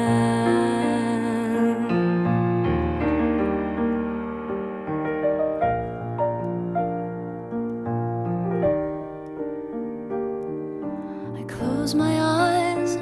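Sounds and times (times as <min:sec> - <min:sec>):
person singing: 0:00.0 - 0:02.5, 0:11.4 - 0:13.0
piano instrumental: 0:00.0 - 0:13.0.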